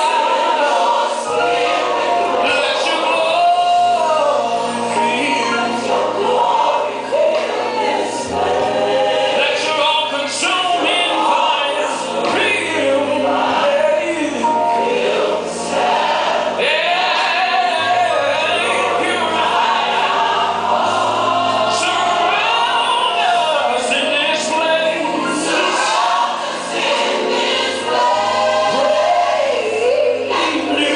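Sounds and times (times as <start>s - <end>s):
choir singing: 0.0s - 30.9s.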